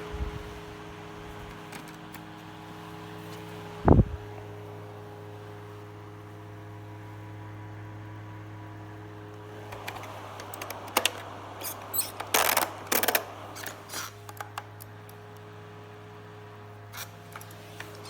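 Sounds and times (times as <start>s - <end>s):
battery fan humming: 0.0s - 18.0s
sharp clicks and clattering handling: 1.4s - 2.4s, 9.3s - 15.5s, 17.0s - 18.0s.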